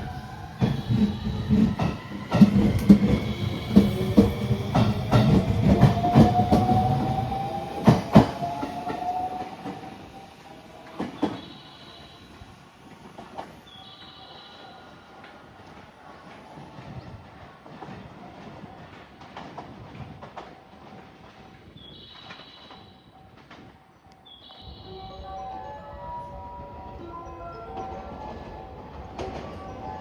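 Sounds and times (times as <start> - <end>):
train wheels clacking over rail joints: 17.6 - 23.8.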